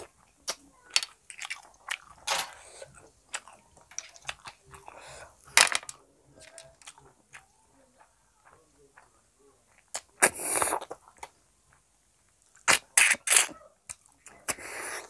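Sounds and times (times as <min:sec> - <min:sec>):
chewing: 0:00.0 - 0:05.2, 0:06.4 - 0:15.0
snail shells clicking: 0:00.4 - 0:02.4, 0:03.3 - 0:04.6, 0:05.6 - 0:07.5
mouth noises: 0:06.3 - 0:11.3, 0:12.6 - 0:15.0.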